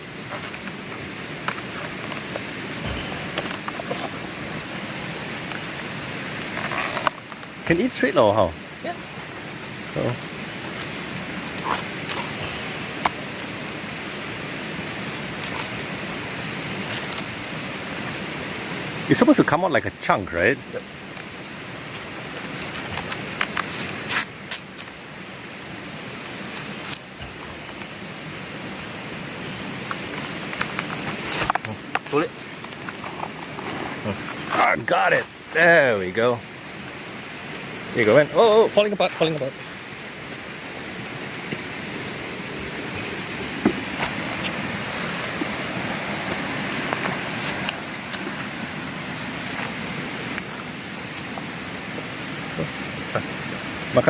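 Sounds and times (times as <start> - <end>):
running water rushing: 0.0 - 54.0
steady hiss: 0.0 - 54.0
palm stem cracking and snapping: 10.8 - 12.4, 16.8 - 17.3, 22.4 - 25.0, 29.9 - 33.4.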